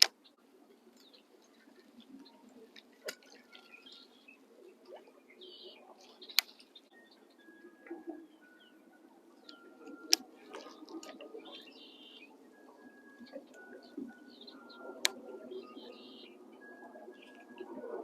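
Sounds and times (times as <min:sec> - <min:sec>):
sharp clicks: 0:00.0 - 0:00.2, 0:06.3 - 0:06.7, 0:09.4 - 0:11.2
birds chirping: 0:00.0 - 0:18.0.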